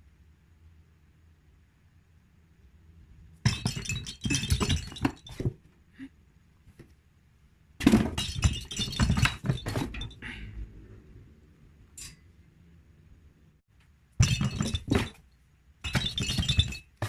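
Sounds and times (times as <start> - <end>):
hard objects clattering: 3.5 - 5.7, 7.8 - 10.3, 14.2 - 15.2, 15.8 - 17.0.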